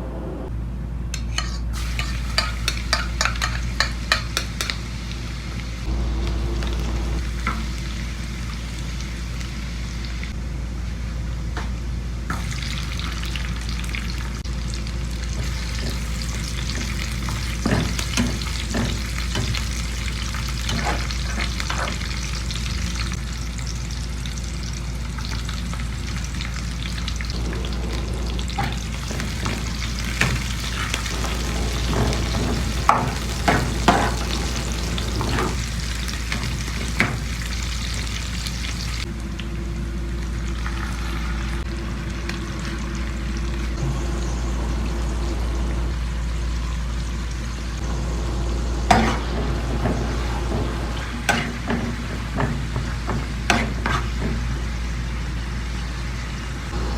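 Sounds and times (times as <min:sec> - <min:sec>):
steady low hum: 0:00.0 - 0:56.9
food sizzling in a pan: 0:01.7 - 0:10.4, 0:12.3 - 0:39.1, 0:46.0 - 0:56.8
utensil scraping a pan: 0:48.9 - 0:54.4.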